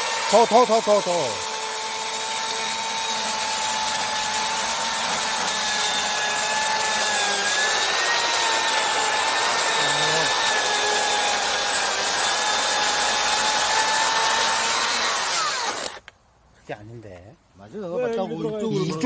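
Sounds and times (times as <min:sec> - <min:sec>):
chainsaw cutting wood: 0:00.0 - 0:16.1.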